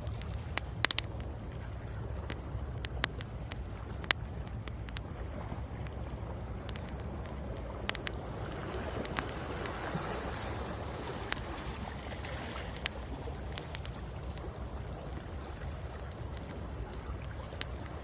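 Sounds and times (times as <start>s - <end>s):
wood fire crackling: 0.0s - 1.3s, 2.3s - 5.2s, 5.8s - 9.8s, 10.6s - 14.5s
ocean waves on shore: 0.0s - 18.0s.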